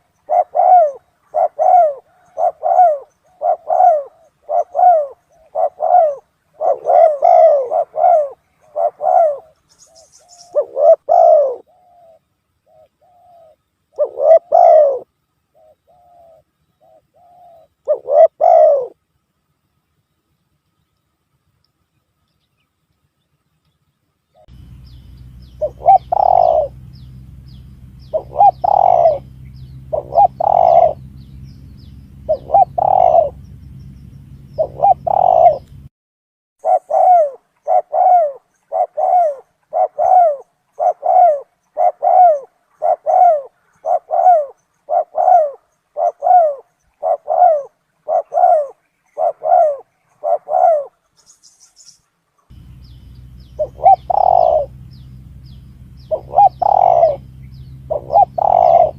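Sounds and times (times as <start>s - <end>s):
doves cooing: 0.0s - 19.0s, 24.4s - 35.9s, 36.6s - 51.2s, 52.5s - 58.9s
low hum: 24.4s - 35.9s, 52.5s - 58.9s.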